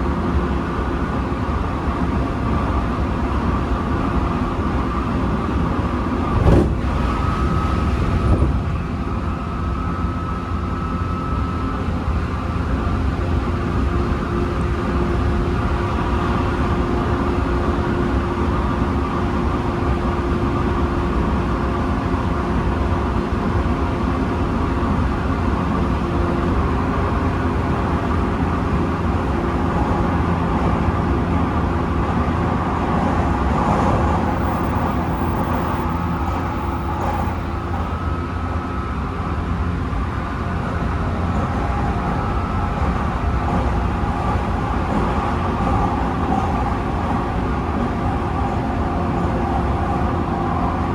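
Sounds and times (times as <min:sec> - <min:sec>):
train wheels rumbling on rails: 0:00.0 - 0:50.9
traction motors whining: 0:33.8 - 0:46.8.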